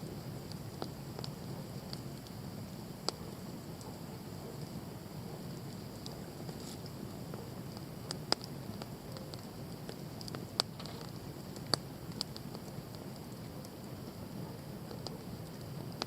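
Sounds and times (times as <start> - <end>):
campfire burning rush: 0.0 - 16.0
fire crackling ticks: 0.0 - 16.0
sharp fire pops: 5.8 - 16.0.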